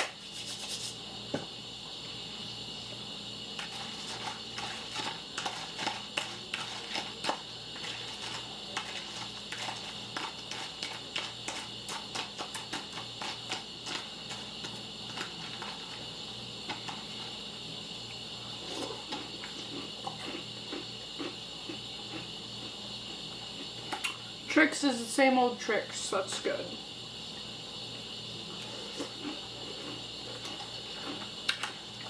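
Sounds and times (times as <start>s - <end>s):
steady background hum: 0.0s - 32.0s
person chewing crunchy cereal: 3.6s - 17.4s, 18.1s - 24.2s, 28.5s - 31.8s.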